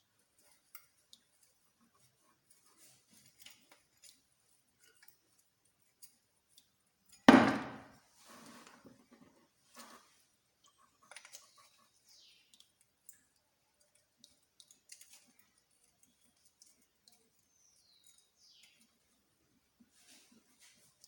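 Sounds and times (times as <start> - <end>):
small metal parts clicking: 12.4 - 18.8.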